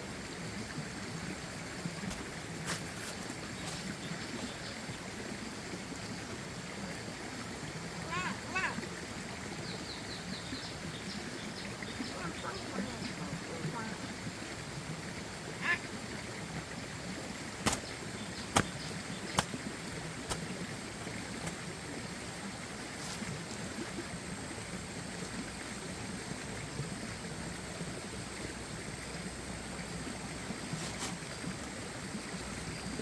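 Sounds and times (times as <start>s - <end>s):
steady water noise: 0.0s - 33.0s.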